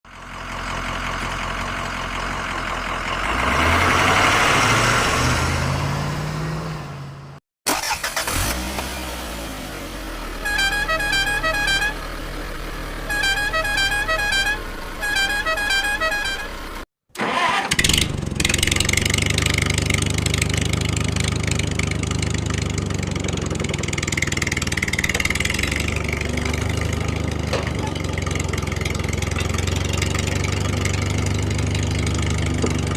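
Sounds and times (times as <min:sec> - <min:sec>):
engine rising in pitch: 0:02.4 - 0:32.9
engine running steadily: 0:07.7 - 0:16.8
warbling musical horn tune: 0:10.4 - 0:12.1, 0:13.0 - 0:16.8.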